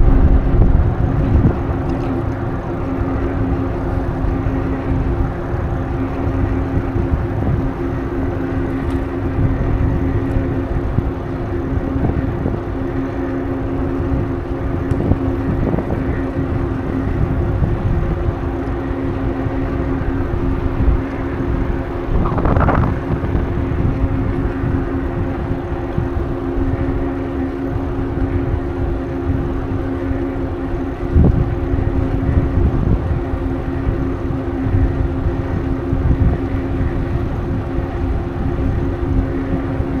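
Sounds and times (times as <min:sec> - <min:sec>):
steady low hum: 0:00.0 - 0:40.0
wind buffeting microphone: 0:00.0 - 0:40.0.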